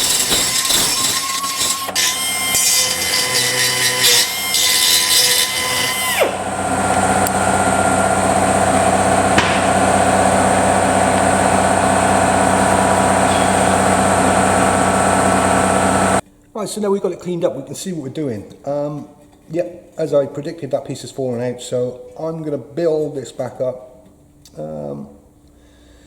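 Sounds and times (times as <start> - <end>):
power tool grinding metal: 0.0 - 16.2
steady machine hum: 5.9 - 16.2.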